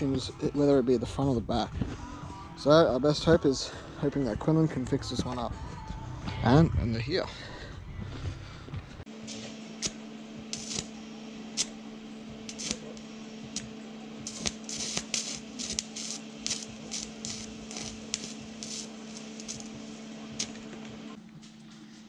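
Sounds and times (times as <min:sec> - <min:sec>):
welding arc crackling: 0:09.1 - 0:21.2.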